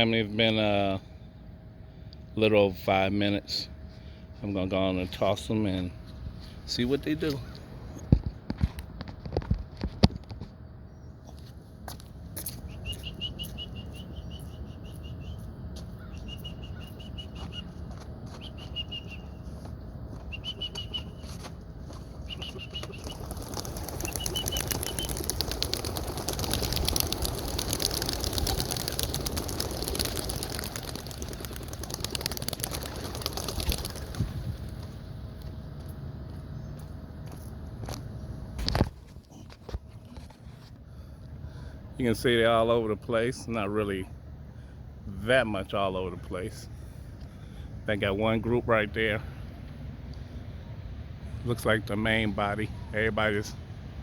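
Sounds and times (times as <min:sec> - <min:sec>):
small bird chirping trills: 0:12.6 - 0:17.7, 0:22.2 - 0:34.0
pigeon wings flapping: 0:20.3 - 0:35.0.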